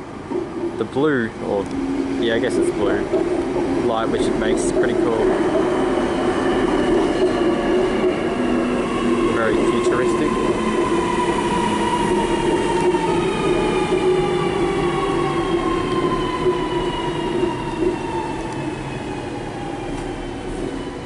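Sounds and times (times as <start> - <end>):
train rumble: 0.0 - 21.0
electric train motors whining: 1.4 - 21.0.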